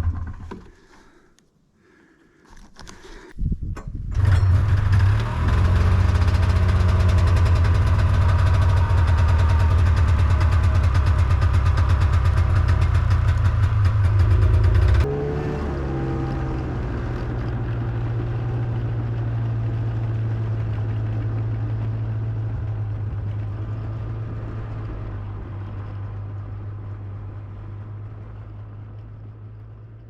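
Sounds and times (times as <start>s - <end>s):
engine idling: 4.1s - 15.1s.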